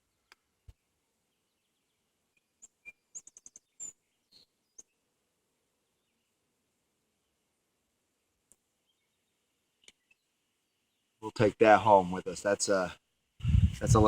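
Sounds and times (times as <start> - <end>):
faint high-pitched clicks and chirps: 0.0 - 5.1, 8.4 - 10.4.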